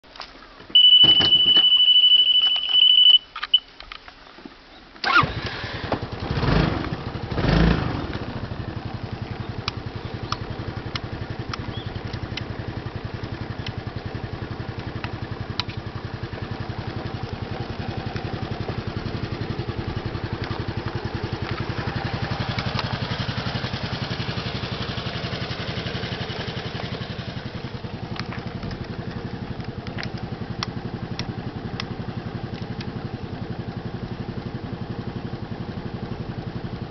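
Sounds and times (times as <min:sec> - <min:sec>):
scooter engine starting and idling: 0:00.7 - 0:03.2, 0:05.0 - 0:36.9.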